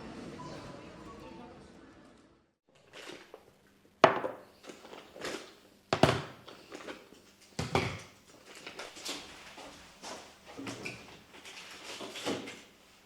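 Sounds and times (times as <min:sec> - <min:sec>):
light clatters and rustling: 0:06.5 - 0:12.8.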